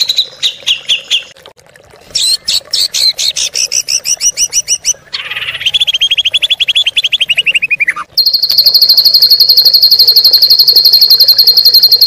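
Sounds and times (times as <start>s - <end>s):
bird chirps: 3.6s - 12.0s
bird trill: 4.2s - 12.0s.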